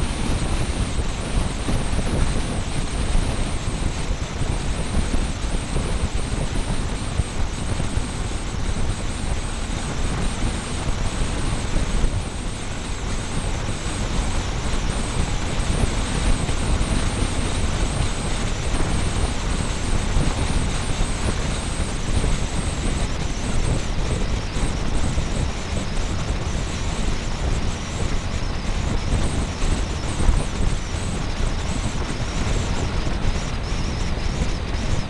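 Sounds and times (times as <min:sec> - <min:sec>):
thin high whine: 0:00.0 - 0:35.0
wind rush and road noise: 0:00.0 - 0:35.0.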